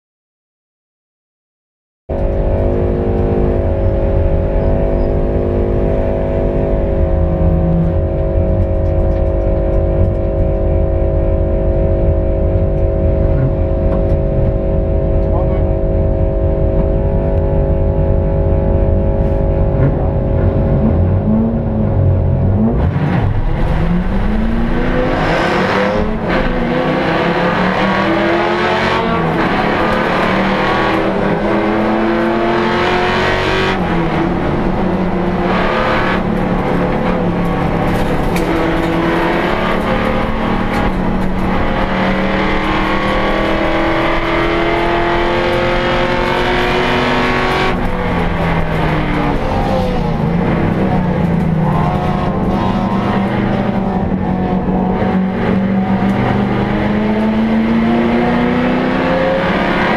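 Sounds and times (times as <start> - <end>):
race car engine accelerating: 2.1 - 59.9.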